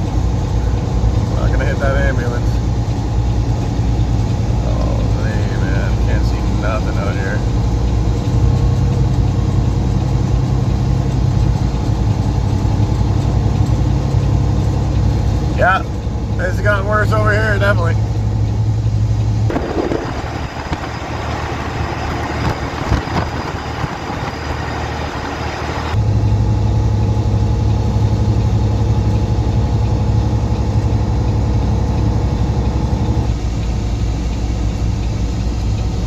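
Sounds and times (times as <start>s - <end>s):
truck engine drone: 0.0s - 36.0s
hissy rushing noise: 19.5s - 26.0s.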